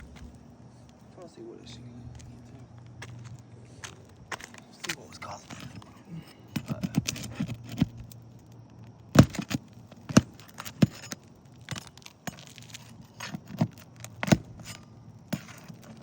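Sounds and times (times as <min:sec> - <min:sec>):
hand tool knocking on roof shingles: 0:09.1 - 0:16.0.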